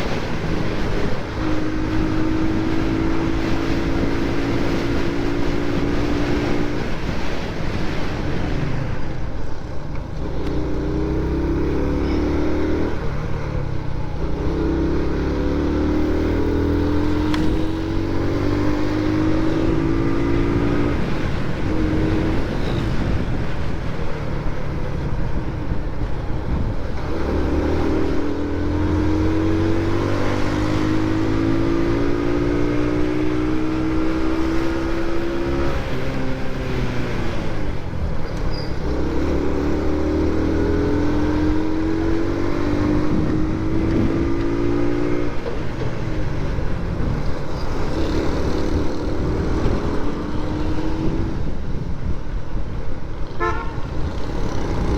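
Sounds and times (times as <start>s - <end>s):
motorcycle engine revving: 0.0s - 9.1s, 10.1s - 54.9s
road and wind noise: 0.0s - 54.9s.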